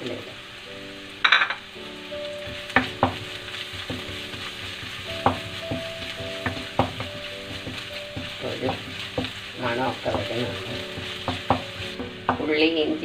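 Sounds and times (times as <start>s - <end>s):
food sizzling in hot oil: 0.0s - 13.0s
spatula knocking against pan: 2.4s - 12.5s.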